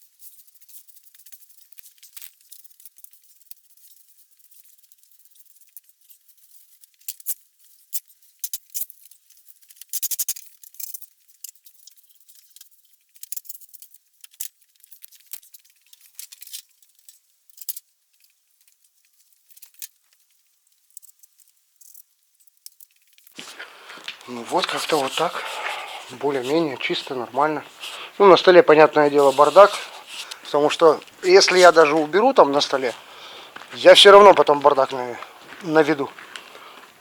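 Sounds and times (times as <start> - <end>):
broom sweeping a floor: 23.4 - 33.0.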